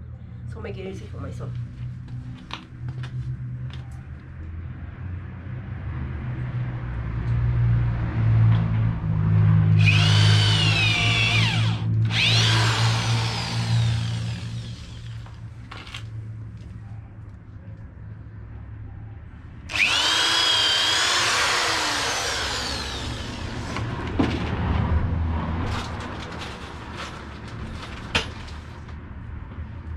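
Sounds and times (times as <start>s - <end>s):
drill bit screeching in wood: 9.8s - 15.1s, 19.7s - 23.5s
power drill motor humming: 9.8s - 16.0s, 19.7s - 23.8s.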